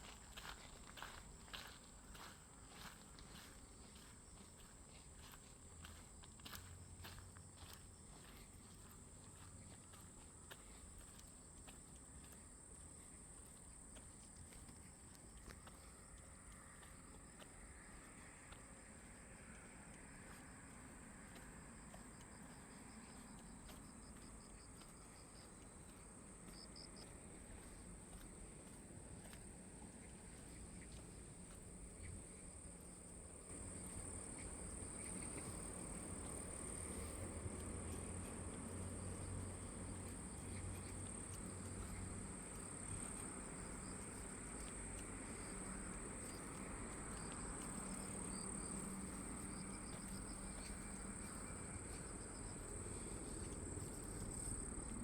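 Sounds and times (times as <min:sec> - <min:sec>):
outdoor forest ambience: 0:00.0 - 0:55.0
insects trilling: 0:30.0 - 0:55.0.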